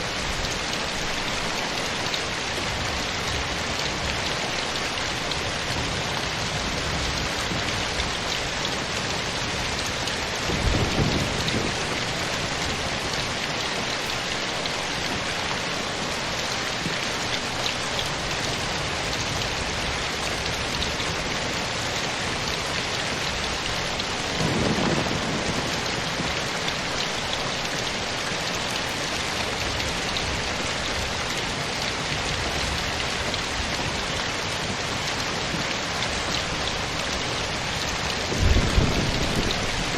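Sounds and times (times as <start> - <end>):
steady rain falling: 0.0 - 39.9
low rumbles of thunder: 10.2 - 13.9, 23.2 - 31.1, 37.7 - 39.9.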